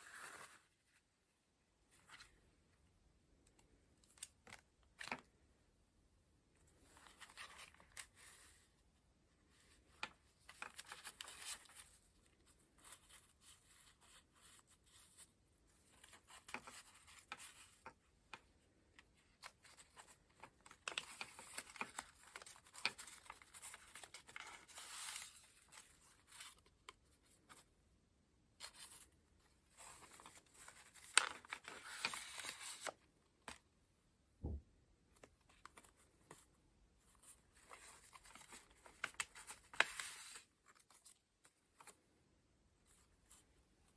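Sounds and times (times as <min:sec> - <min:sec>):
paper pages rustling: 0:09.5 - 0:18.4, 0:19.0 - 0:27.7, 0:28.6 - 0:33.6, 0:37.1 - 0:42.0.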